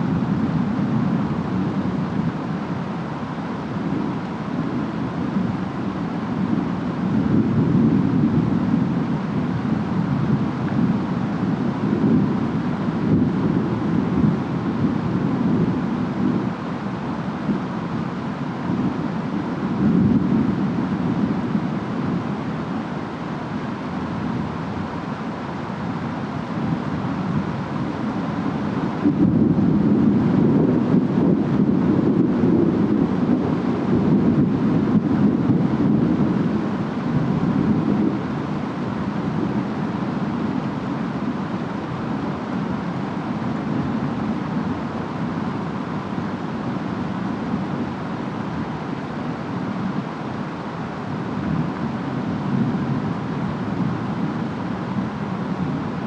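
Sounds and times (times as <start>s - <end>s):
steady rain: 0.0s - 56.0s
wind: 0.0s - 56.0s.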